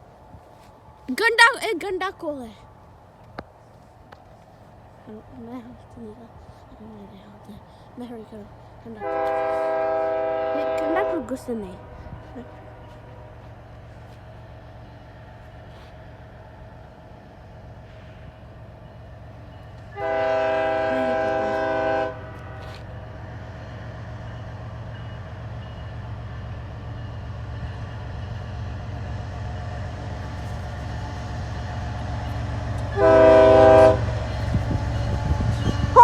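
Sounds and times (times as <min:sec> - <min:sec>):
locomotive rumble: 0:00.0 - 0:36.0
locomotive air horn blasts: 0:09.0 - 0:12.6, 0:20.0 - 0:22.8, 0:32.9 - 0:34.4, 0:35.7 - 0:36.0.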